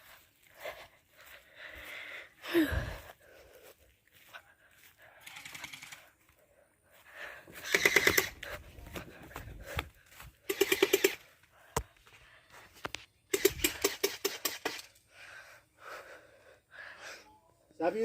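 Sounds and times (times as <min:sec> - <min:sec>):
gel blaster firing bursts: 0:07.7 - 0:08.4.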